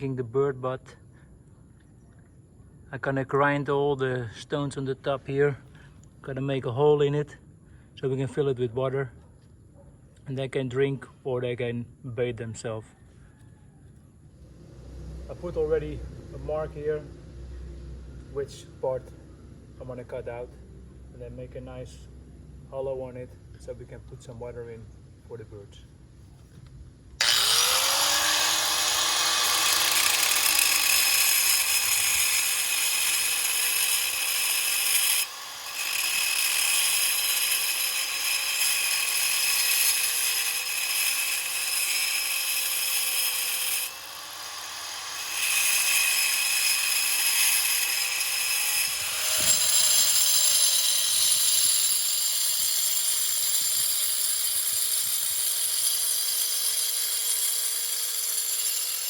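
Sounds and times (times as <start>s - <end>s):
electric grinder grinding stone: 27.2s - 59.0s.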